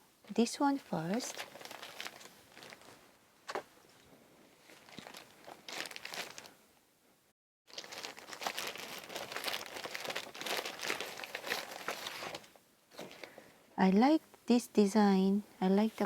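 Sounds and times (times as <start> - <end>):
packaging crinkling and rustling: 0.7 - 6.6, 7.7 - 13.4
packaging tearing: 1.2 - 2.9, 4.8 - 6.5, 7.7 - 12.5.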